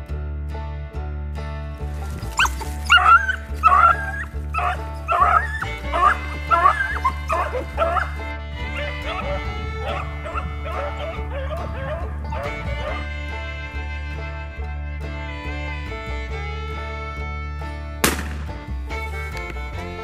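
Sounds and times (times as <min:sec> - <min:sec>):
dog yelping barks: 0:02.3 - 0:13.0.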